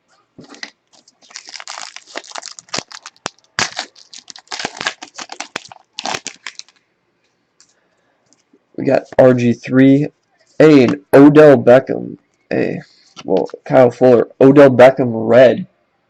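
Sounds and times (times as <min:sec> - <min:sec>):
foil wrapper tearing and crinkling: 0:00.4 - 0:06.8.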